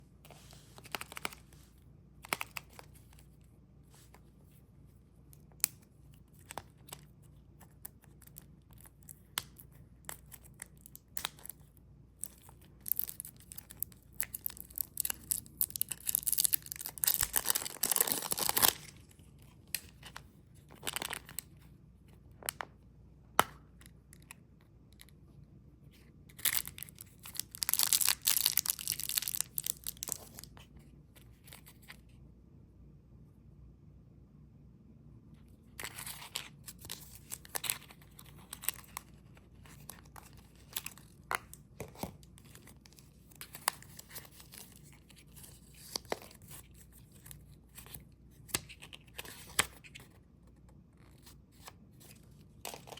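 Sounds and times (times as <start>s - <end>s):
packaging tearing and crinkling: 12.8s - 19.0s, 26.4s - 30.5s.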